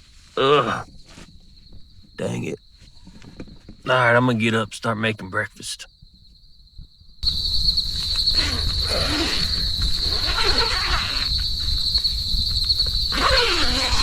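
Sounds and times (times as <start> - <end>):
high-pitched insect chorus: 0.0 - 14.0
wind rumble on microphone: 6.0 - 14.0.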